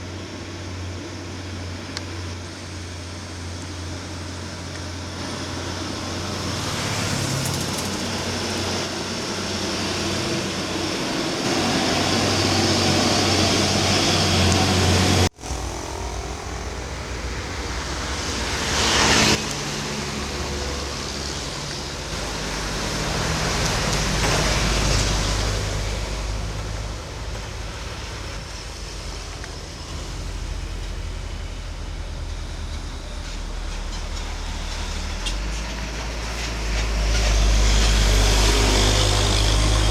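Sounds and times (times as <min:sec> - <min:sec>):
road traffic: 0:00.0 - 0:39.9
truck engine pulling hard: 0:03.0 - 0:39.9
vehicle passing close: 0:05.2 - 0:28.8, 0:29.8 - 0:39.9.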